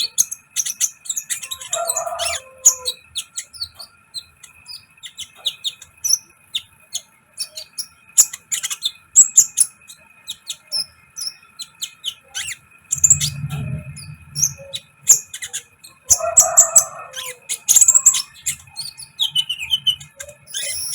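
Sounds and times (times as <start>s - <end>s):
bird chirping and twittering: 0.0s - 20.9s
low rumble: 12.9s - 15.2s.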